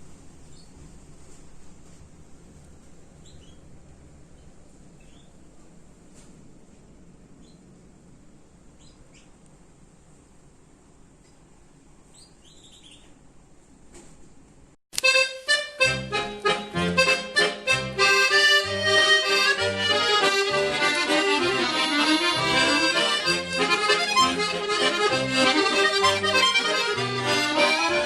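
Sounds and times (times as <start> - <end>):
accordion chord stabs: 15.0 - 28.0
steady bass rhythm: 15.9 - 28.0.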